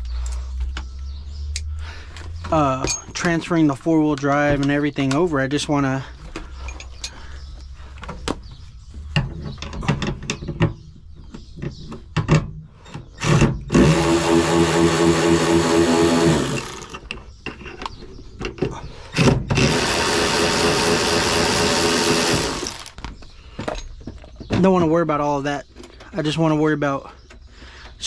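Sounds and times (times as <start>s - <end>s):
power drill running: 13.2s - 17.0s, 19.2s - 23.0s.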